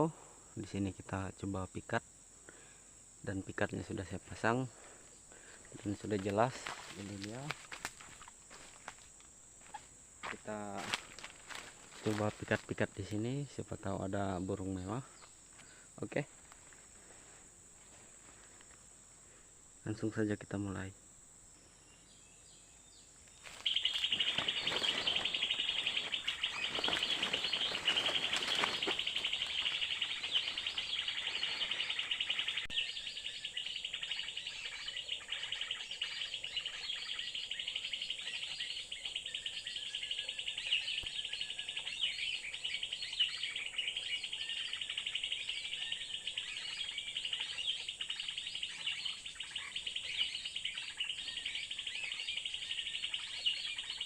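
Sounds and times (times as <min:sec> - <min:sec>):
rapid high-pitched bird chirping: 0:23.5 - 0:54.0.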